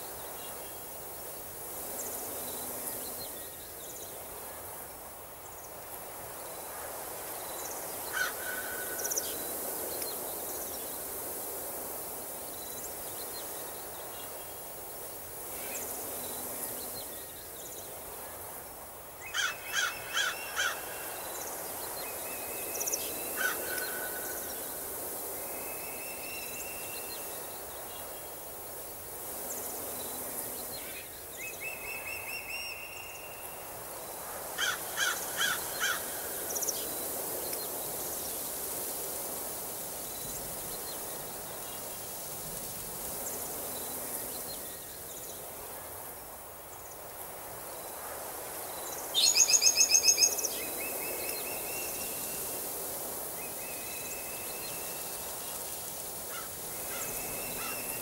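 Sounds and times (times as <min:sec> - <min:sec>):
background hiss: 0:00.0 - 0:58.0
wild birds calling: 0:08.0 - 0:09.8, 0:19.2 - 0:26.8, 0:34.4 - 0:36.9, 0:56.2 - 0:58.0
loud bird calls: 0:08.1 - 0:09.4, 0:19.3 - 0:21.6, 0:22.7 - 0:24.6.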